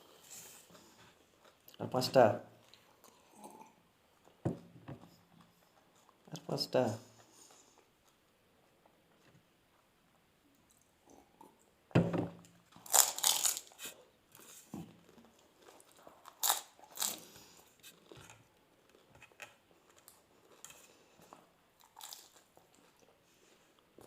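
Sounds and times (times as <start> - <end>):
crunching bites: 12.8 - 13.8.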